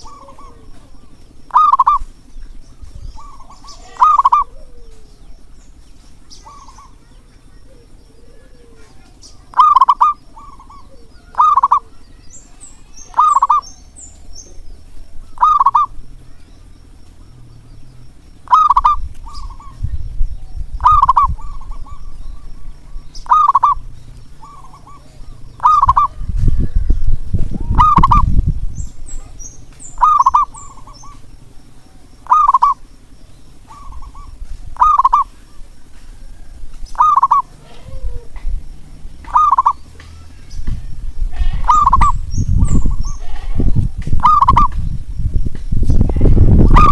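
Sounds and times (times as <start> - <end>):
dove cooing: 0.0 - 46.9
small bird chirping: 0.0 - 46.9
low rumble: 12.0 - 32.2.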